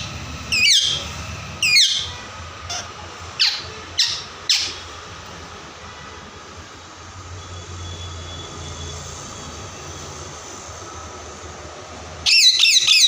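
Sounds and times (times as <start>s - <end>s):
parrot squawking: 0.0s - 4.9s, 12.2s - 13.0s.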